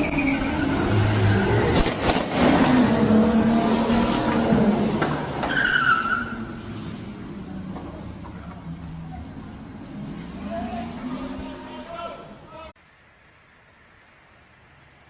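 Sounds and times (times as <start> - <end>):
short high squeal: 0.0 - 0.9, 5.5 - 6.8
tyres skidding: 0.0 - 12.7.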